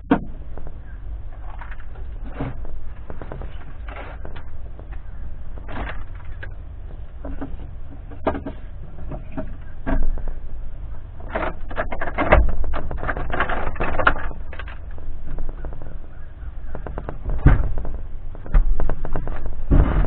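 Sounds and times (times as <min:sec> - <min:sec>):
low rumble: 0:00.0 - 0:20.0
hard objects knocking and clattering: 0:11.2 - 0:20.0.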